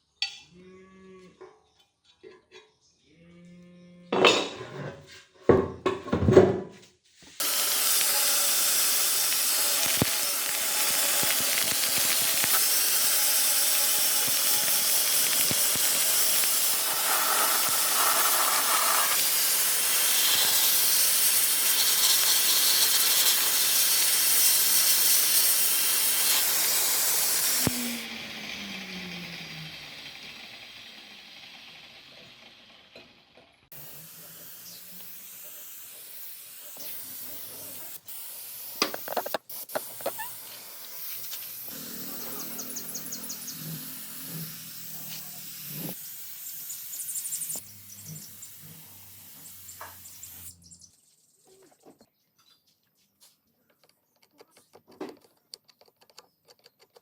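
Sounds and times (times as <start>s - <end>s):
air tool hissing: 7.4s - 32.4s, 33.7s - 50.7s.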